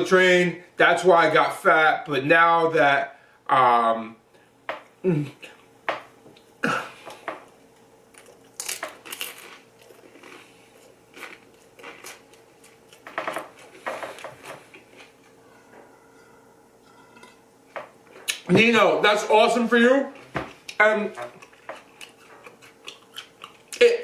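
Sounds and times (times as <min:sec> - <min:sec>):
chewing and biting: 0:08.1 - 0:15.2, 0:20.5 - 0:23.8.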